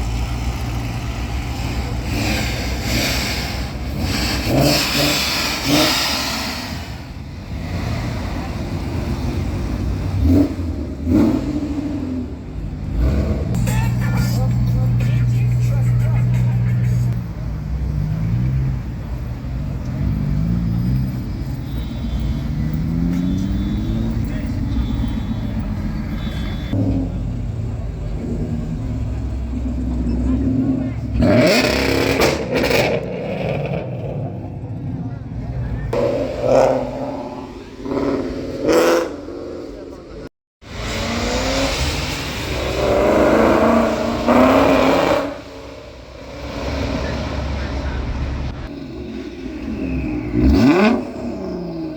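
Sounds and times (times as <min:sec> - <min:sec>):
car engine revving: 0:00.0 - 0:51.9
car engine accelerating: 0:26.6 - 0:51.9.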